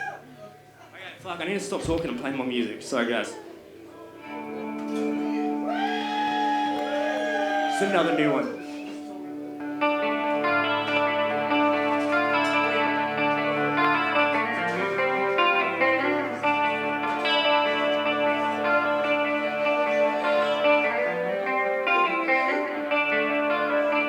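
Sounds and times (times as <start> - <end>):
guitar chords with effects: 3.3 - 24.0
steady low bass notes: 9.4 - 22.2.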